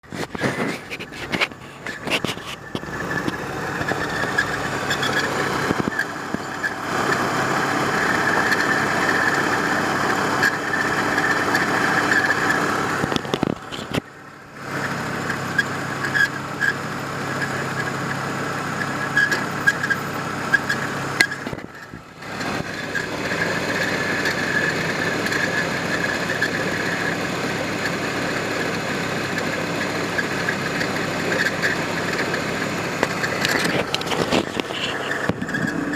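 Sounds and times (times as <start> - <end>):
car engine idling: 0.0 - 35.9
high-pitched squeak: 0.1 - 7.3, 10.4 - 13.9, 18.8 - 22.0, 33.1 - 35.9.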